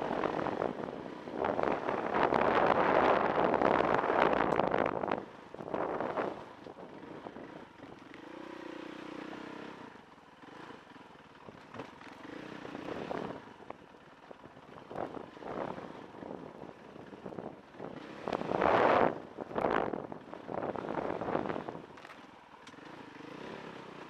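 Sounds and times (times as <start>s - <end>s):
wind gusts on microphone: 1.4s - 6.5s, 17.2s - 21.8s
dirt bike engine revving: 11.7s - 13.4s, 17.8s - 21.8s, 22.7s - 24.0s.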